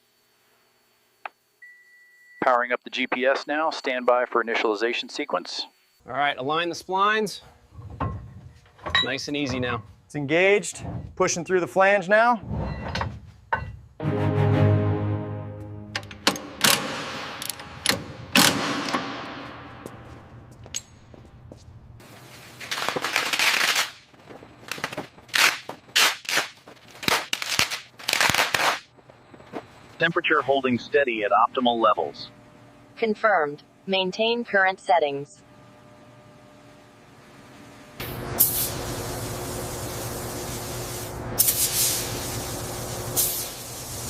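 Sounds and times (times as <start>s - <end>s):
steady low hum: 0.0s - 14.0s, 15.3s - 44.0s
hissing crackling noise bursts: 22.0s - 28.9s, 38.0s - 44.0s
paint spray gun hissing: 38.0s - 44.0s.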